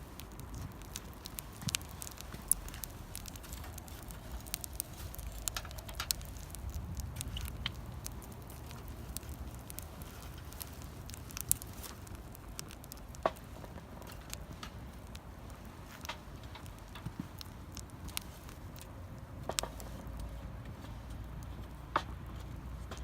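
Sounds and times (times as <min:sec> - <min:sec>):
low steady rumble: 0:00.0 - 0:23.0
wood fire crackling: 0:00.0 - 0:23.0.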